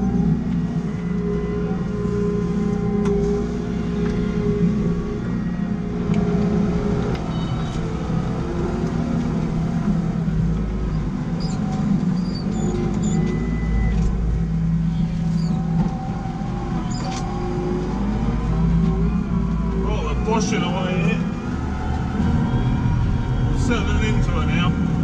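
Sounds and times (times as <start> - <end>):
diesel engine under load: 0.0 - 25.0
faint squeaks and clicks: 7.2 - 7.9, 10.8 - 17.6.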